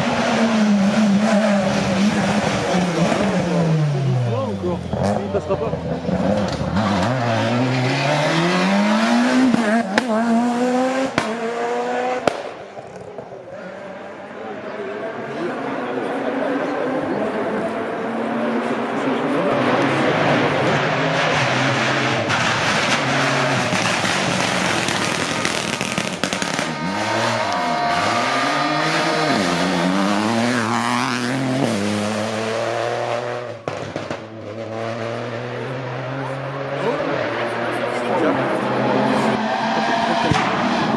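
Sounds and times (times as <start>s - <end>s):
rally car engine accelerating: 0.0s - 40.9s.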